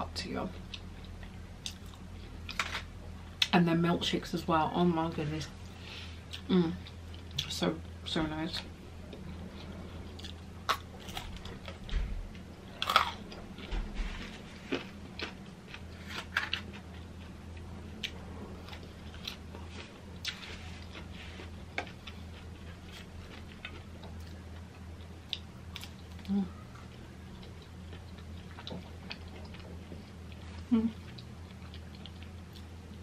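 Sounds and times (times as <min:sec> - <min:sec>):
person chewing and biting fries: 0:09.1 - 0:11.8, 0:12.8 - 0:33.0.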